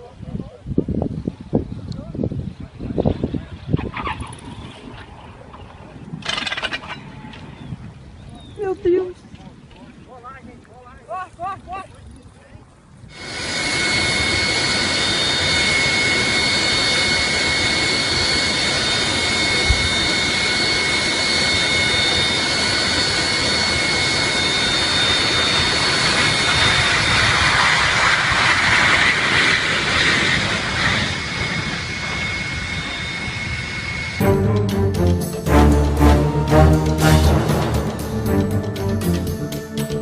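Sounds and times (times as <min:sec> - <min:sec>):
jet engine rush: 0:13.1 - 0:39.8
high-pitched turbine whine: 0:13.1 - 0:40.0.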